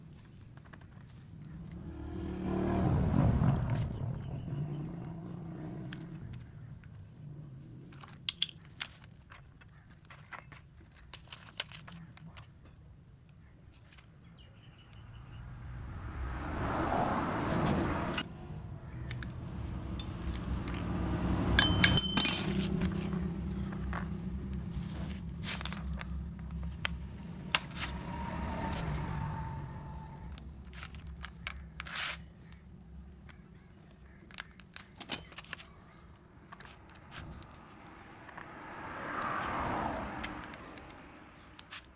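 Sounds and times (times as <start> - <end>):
low rumble: 14.8 - 31.5
metal tools clinking: 19.0 - 29.0, 34.2 - 38.0.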